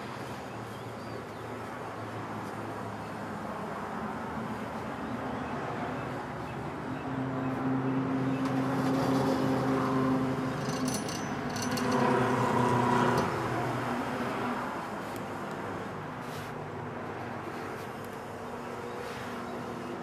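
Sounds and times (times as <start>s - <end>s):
light metallic clinks: 10.6s - 12.1s.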